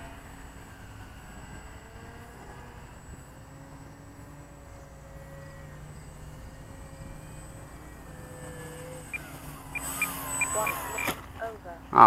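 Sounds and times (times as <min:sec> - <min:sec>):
electric motor whining faintly: 0:00.0 - 0:12.0
low rumble of wind: 0:00.0 - 0:12.0.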